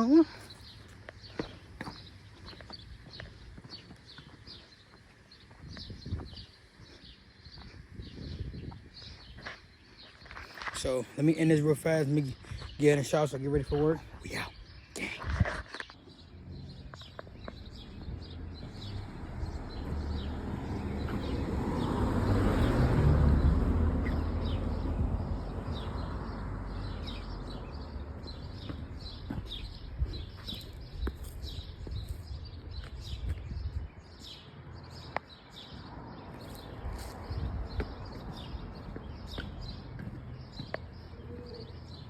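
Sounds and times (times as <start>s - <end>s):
birds chirping: 0.0s - 42.0s
vehicle rumble: 15.1s - 42.0s.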